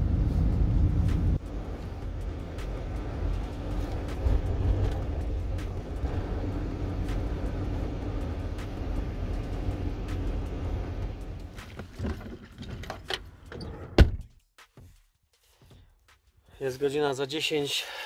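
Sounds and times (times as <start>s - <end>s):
car engine and road rumble: 0.0s - 14.4s.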